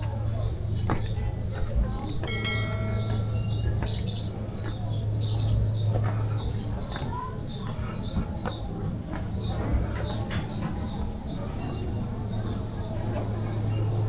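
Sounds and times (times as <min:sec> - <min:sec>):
steady low hum: 0:00.1 - 0:06.9.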